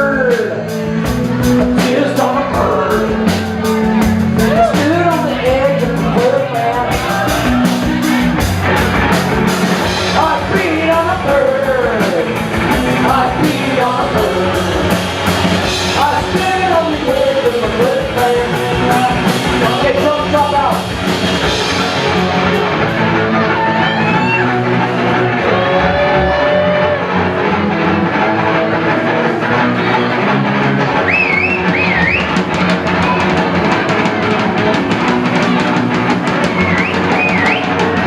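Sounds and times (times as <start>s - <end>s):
live rock music: 0.0s - 38.0s.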